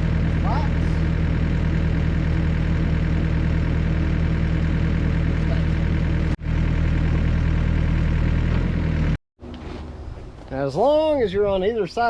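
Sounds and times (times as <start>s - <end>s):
diesel engine idling: 0.0s - 9.2s.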